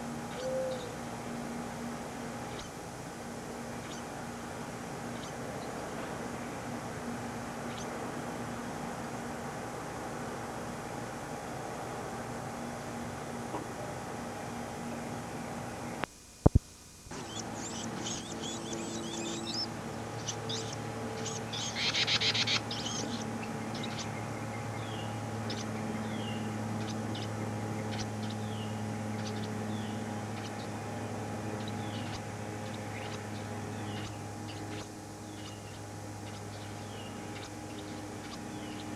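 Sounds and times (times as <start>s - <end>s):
small birds chirping: 0.0s - 2.8s, 3.6s - 8.7s, 17.1s - 38.9s
tape hum and hiss: 0.0s - 38.9s.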